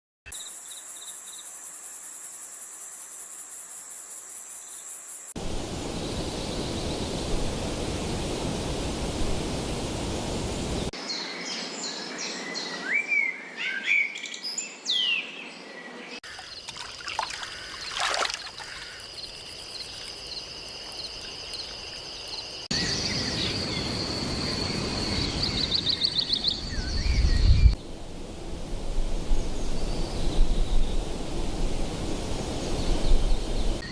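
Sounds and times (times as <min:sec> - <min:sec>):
birds chirping and whistling: 0:25.0 - 0:27.8.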